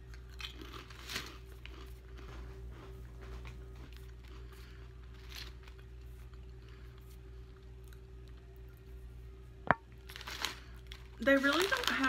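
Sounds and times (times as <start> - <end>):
potato chips crunching: 0.0 - 2.5, 3.4 - 7.0, 9.9 - 12.0
steady low hum: 0.0 - 12.0.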